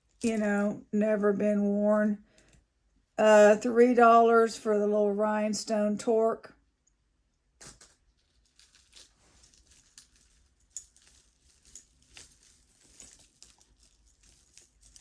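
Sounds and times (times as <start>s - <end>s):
jewelry clinking and rattling: 7.6s - 15.0s.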